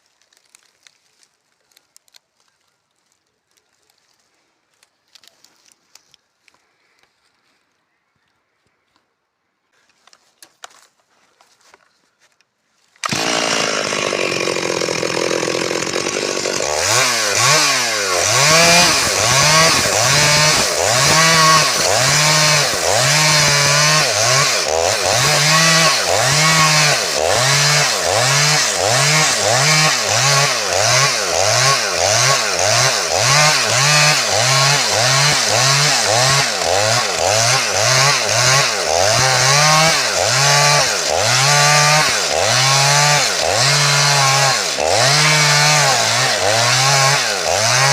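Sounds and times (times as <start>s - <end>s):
chainsaw running at high revs: 13.0s - 47.9s.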